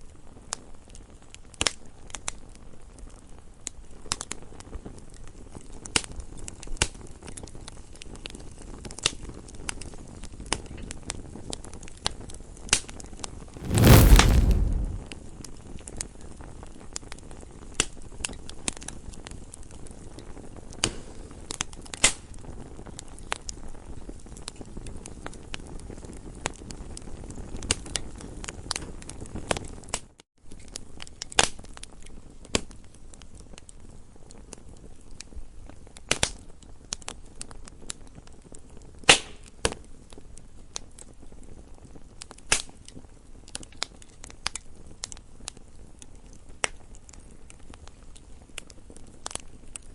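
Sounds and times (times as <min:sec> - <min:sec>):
campfire crackling and popping: 0:13.6 - 0:15.1.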